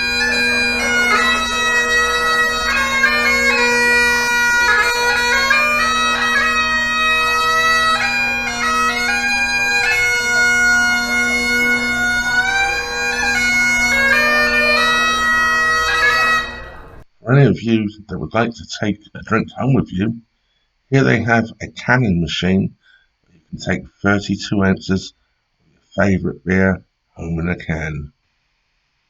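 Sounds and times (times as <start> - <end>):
bagpipes playing a tune: 0.0 - 17.1.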